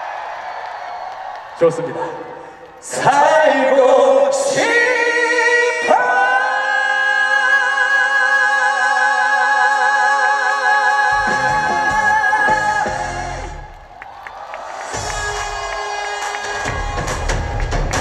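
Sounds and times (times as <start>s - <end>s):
man singing with vibrato: 2.8s - 13.7s
backing music: 11.1s - 13.9s, 14.8s - 18.0s.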